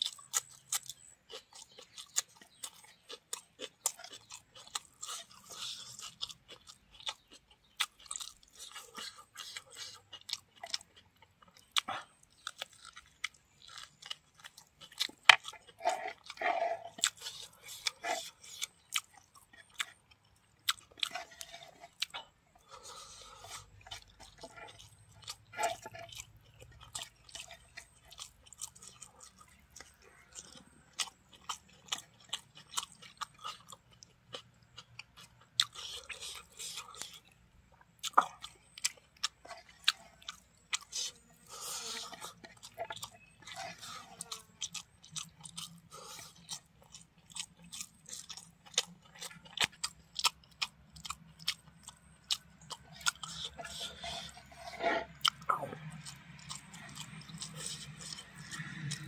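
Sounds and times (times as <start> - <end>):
person chewing and crunching food: 0.0 - 59.0
mouth clicks: 53.0 - 58.6.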